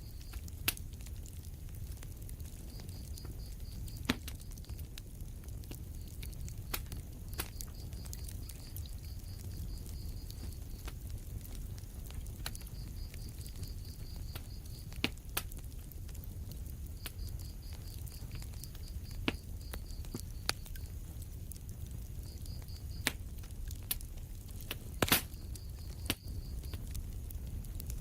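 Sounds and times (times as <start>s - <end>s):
low fire rumble: 0.0s - 28.0s
wood fire crackling: 0.0s - 28.0s.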